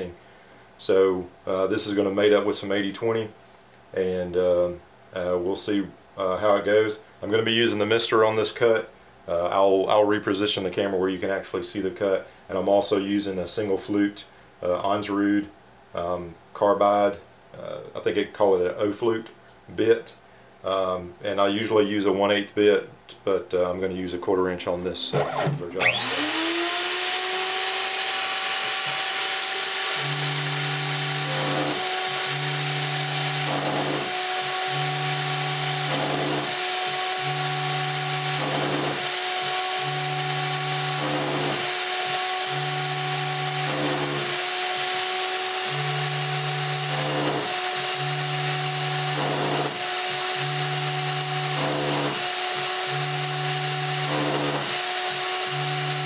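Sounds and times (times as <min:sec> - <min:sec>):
router spindle high pitch whine: 0:25.0 - 0:56.0.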